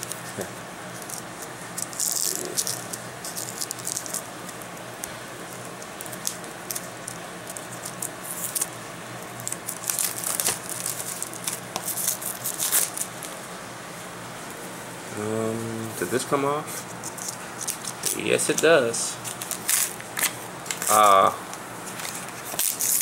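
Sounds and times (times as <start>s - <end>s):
package crinkling: 0.9s - 13.3s, 17.0s - 21.2s, 21.8s - 23.0s.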